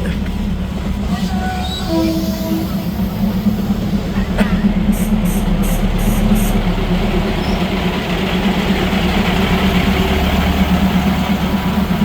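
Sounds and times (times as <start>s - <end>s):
diesel train engine running: 0.0s - 12.0s.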